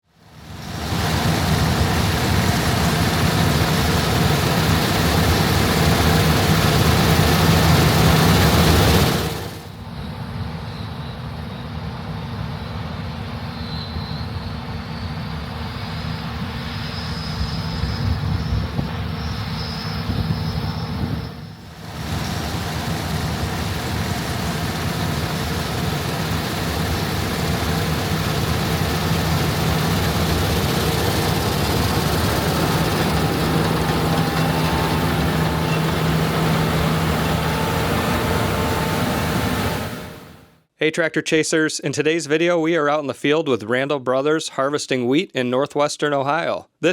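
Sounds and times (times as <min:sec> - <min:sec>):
diesel engines humming: 0:00.3 - 0:09.8, 0:16.3 - 0:40.6
faint high whine: 0:00.4 - 0:40.6.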